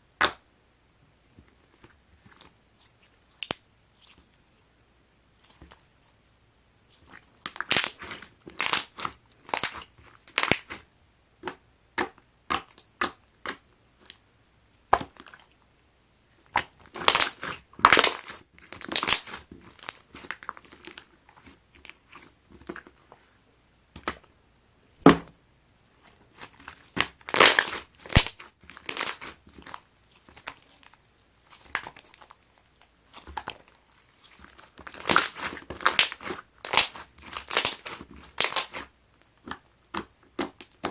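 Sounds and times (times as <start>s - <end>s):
slime wet popping and crackling: 6.9s - 10.8s, 11.4s - 14.2s, 16.5s - 22.9s, 26.3s - 40.9s.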